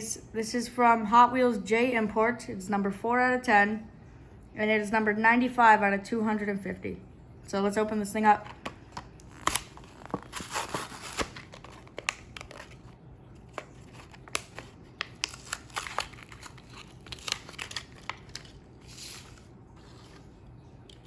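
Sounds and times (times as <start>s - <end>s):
plastic packaging crinkling and tearing: 8.5s - 21.0s.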